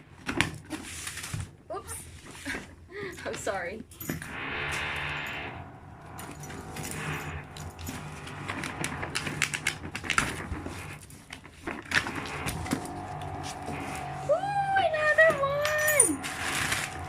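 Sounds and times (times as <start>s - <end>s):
low background hum: 1.7s - 11.1s, 12.1s - 17.0s
items clicking and knocking: 6.2s - 14.1s
packaging rustling: 7.5s - 14.2s.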